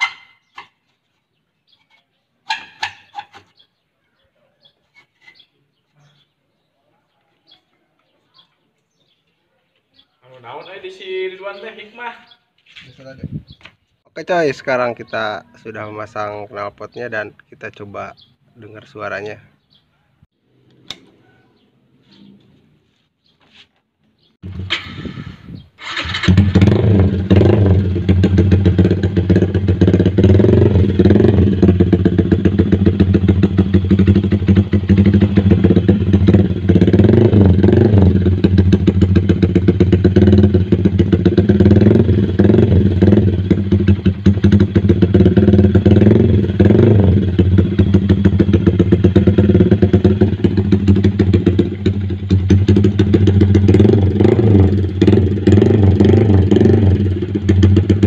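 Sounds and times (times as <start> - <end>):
motorcycle engine idling loudly: 26.3 - 58.0.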